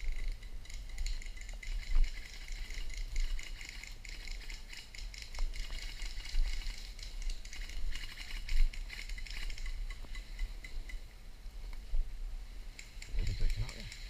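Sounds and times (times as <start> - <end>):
rustling and crackling: 0.0 - 14.0
small clicks: 12.7 - 14.0.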